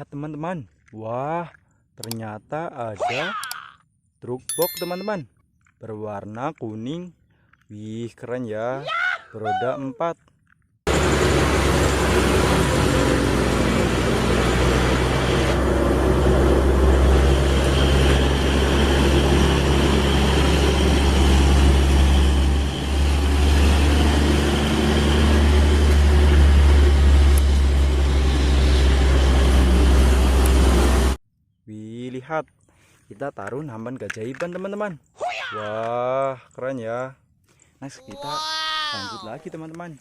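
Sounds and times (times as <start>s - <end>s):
vehicle engine rumbling: 10.9s - 31.2s.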